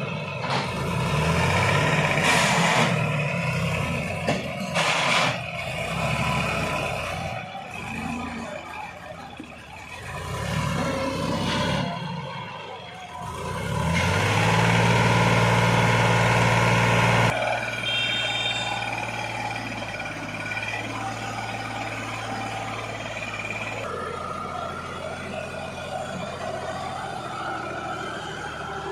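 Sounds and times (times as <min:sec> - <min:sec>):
tractor diesel engine revving: 0:00.0 - 0:28.9.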